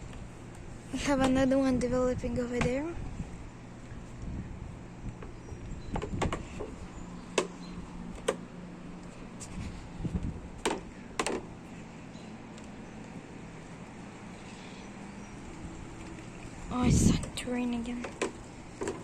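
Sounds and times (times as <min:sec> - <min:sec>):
steady low hum: 0:00.0 - 0:19.0
sharp clicks and knocks: 0:05.2 - 0:08.4, 0:10.6 - 0:11.5, 0:18.0 - 0:19.0.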